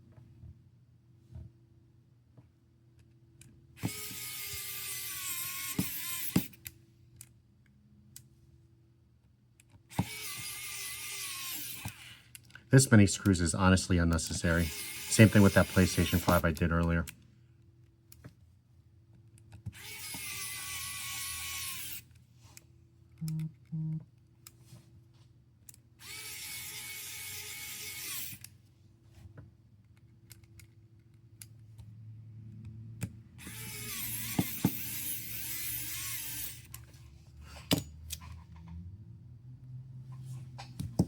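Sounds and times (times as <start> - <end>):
electric screwdriver whirring: 3.8 - 6.7, 9.9 - 12.4, 14.1 - 16.7, 19.6 - 22.1, 26.0 - 28.5, 33.4 - 36.9
short low beeps: 23.2 - 24.0.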